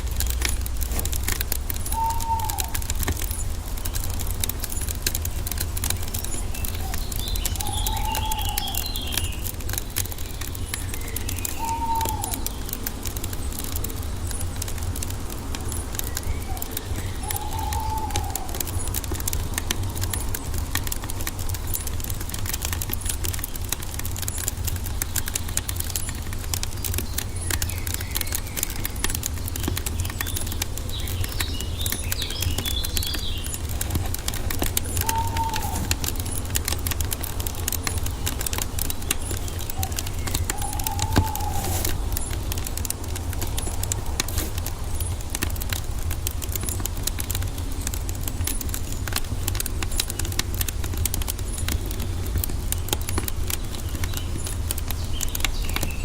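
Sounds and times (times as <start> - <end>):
bird calling: 0.0 - 14.6, 15.6 - 23.5, 25.1 - 45.3
wood fire crackling: 0.0 - 56.0
higher chirping: 31.1 - 36.5.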